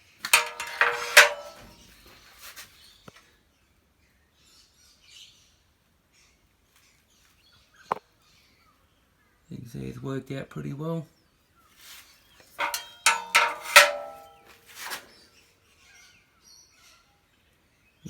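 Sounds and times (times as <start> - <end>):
sharp metallic knocks: 0.3 - 1.7, 12.6 - 15.0
ringing metal scrape: 0.3 - 1.8, 12.6 - 15.0.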